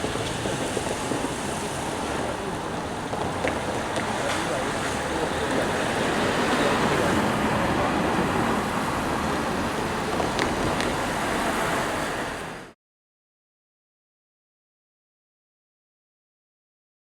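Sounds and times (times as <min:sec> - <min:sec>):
passing vehicles rushing: 0:00.0 - 0:12.8.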